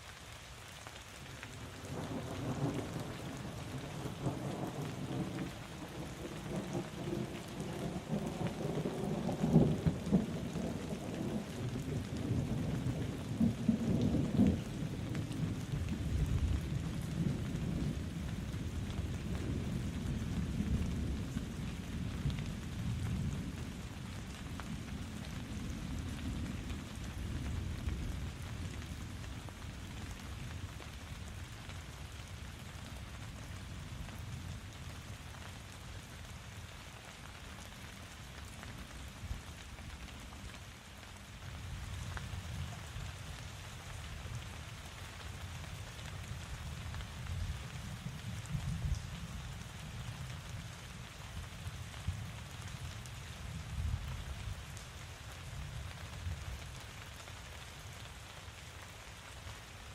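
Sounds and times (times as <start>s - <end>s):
steady rain falling: 0.0s - 59.9s
low rumble of thunder: 1.6s - 36.6s, 45.4s - 54.8s.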